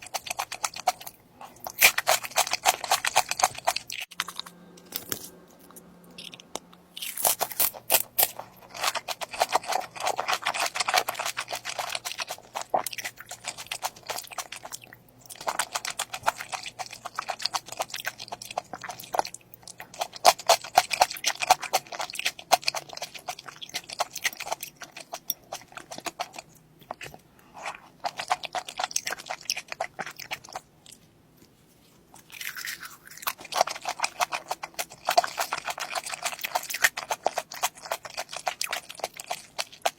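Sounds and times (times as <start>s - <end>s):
crunching and chewing fried food: 0.0s - 39.9s.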